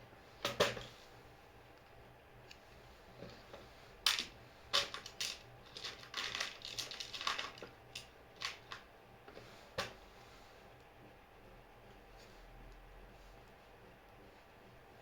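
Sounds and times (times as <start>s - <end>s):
small hard objects clattering: 4.1s - 8.8s.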